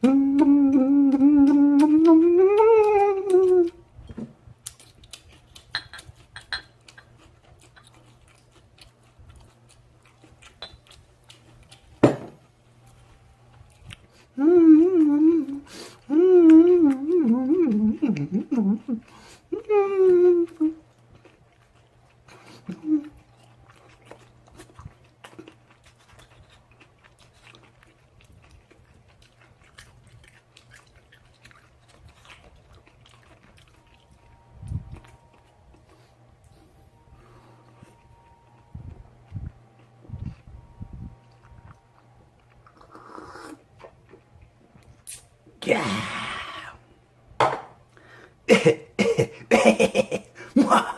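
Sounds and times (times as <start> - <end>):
chewing and crunching: 0.0 - 36.6, 37.6 - 45.4
wet mouth clicks: 4.6 - 8.0, 10.4 - 11.5, 45.0 - 45.3.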